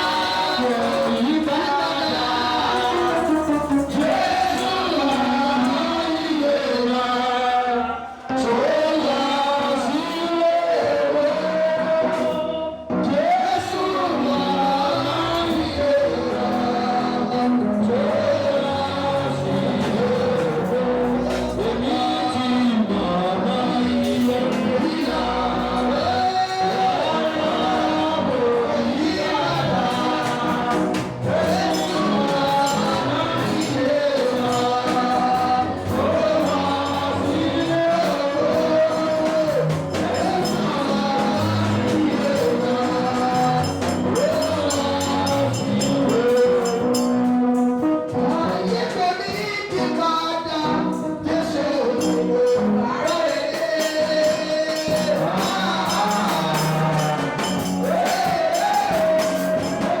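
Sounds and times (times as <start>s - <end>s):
tambourine and hand percussion: 0.0s - 6.0s, 24.0s - 50.0s, 50.9s - 60.0s
congregation and choir singing: 0.0s - 60.0s.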